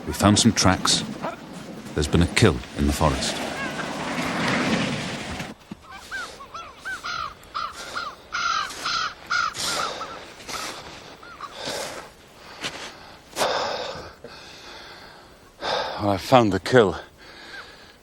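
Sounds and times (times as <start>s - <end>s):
bird calling harshly: 3.3s - 4.2s, 5.8s - 11.7s.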